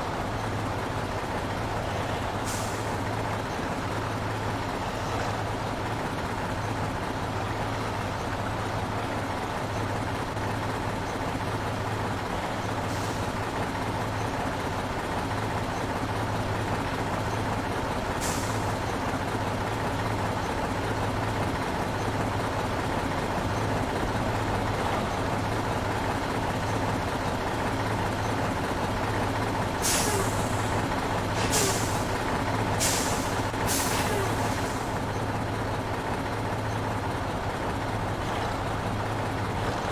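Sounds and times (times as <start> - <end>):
truck diesel engine running: 0.0 - 39.9
air brake hisses: 29.8 - 30.8, 31.4 - 32.2, 32.8 - 35.0.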